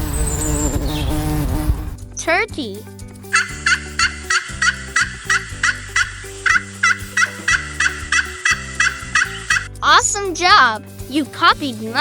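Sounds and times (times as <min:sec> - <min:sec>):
turkey gobbling: 0:03.3 - 0:09.7.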